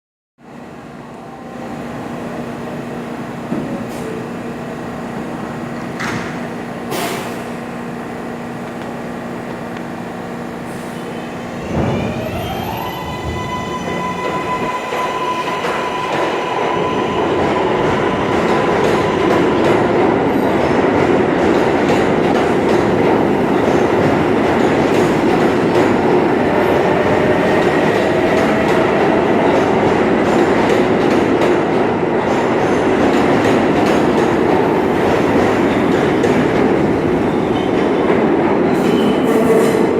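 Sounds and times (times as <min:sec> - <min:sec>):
steady train hum: 0:00.4 - 0:39.9
train thump: 0:05.8 - 0:07.6, 0:11.6 - 0:12.5.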